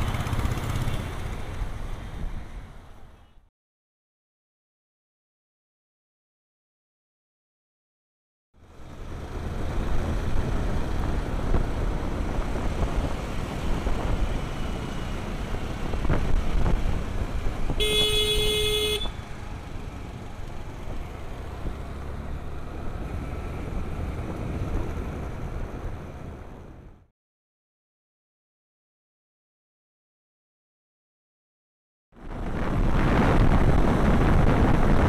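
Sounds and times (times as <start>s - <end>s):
road traffic noise: 0.0s - 3.5s, 8.6s - 27.1s, 32.2s - 35.0s
vehicle horn honking: 17.8s - 19.2s.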